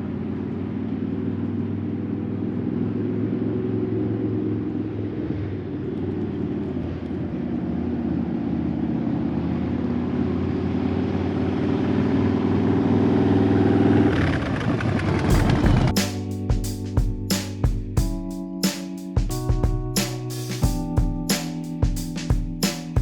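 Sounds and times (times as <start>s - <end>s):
motorcycle engine running: 15.3s - 16.0s.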